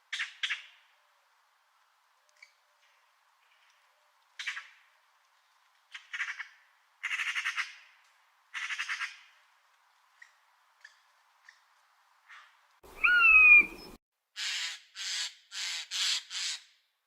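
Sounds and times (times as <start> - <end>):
bird squawking: 12.9 - 16.6.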